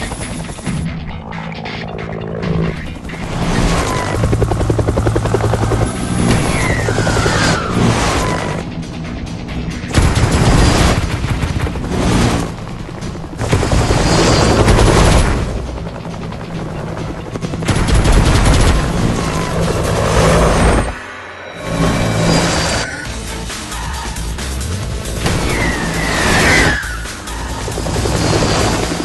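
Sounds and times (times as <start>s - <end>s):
action music: 0.0s - 29.0s
helicopter running: 0.0s - 29.0s
rapid gunfire: 9.9s - 15.7s, 17.6s - 19.2s.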